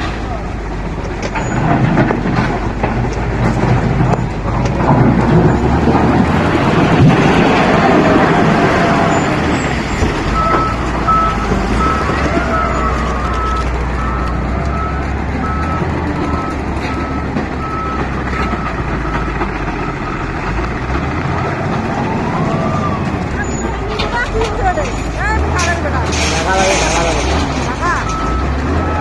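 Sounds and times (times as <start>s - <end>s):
heavy machinery engine running: 0.0s - 29.0s
reversing alarm beeping: 10.3s - 20.2s, 27.9s - 29.0s.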